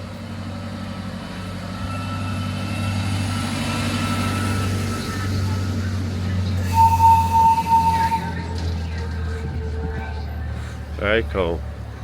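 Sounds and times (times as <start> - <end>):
land train engine humming: 0.0 - 12.0.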